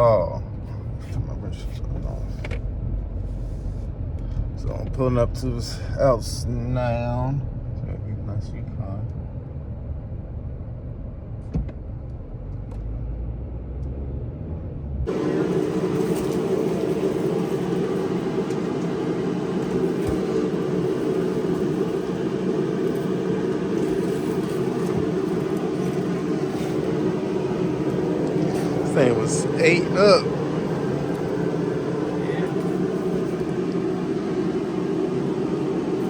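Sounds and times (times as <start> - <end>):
car cabin rumble: 15.0 - 36.0
loud steady noise: 15.1 - 36.0.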